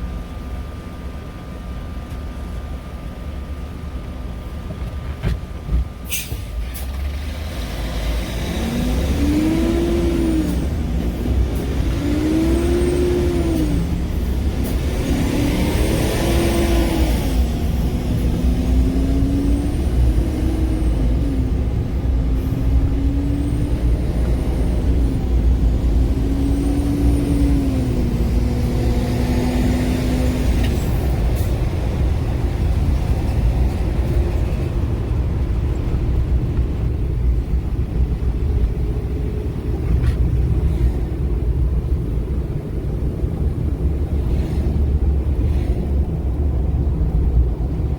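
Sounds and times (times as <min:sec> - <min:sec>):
heavy low rumble: 0:17.4 - 0:47.9.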